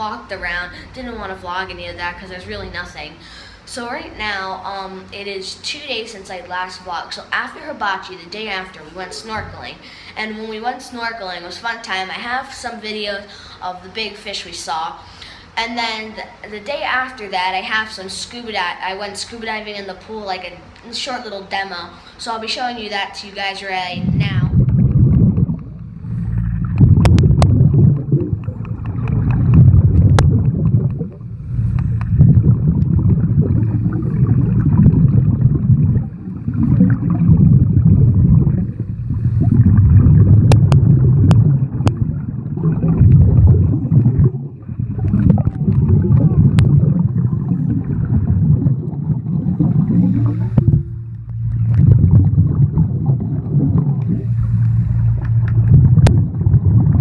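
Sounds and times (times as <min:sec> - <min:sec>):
underwater bubbles gurgling: 0:23.8 - 0:57.0.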